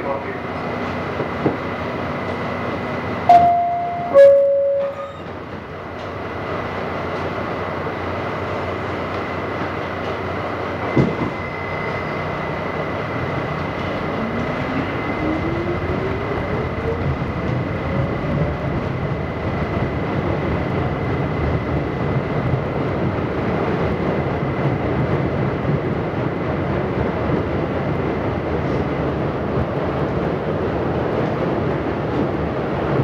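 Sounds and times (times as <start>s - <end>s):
subway car running noise: 0.0s - 33.0s
train clunk: 0.8s - 7.4s, 8.5s - 12.5s
two-tone door chime: 3.3s - 5.3s.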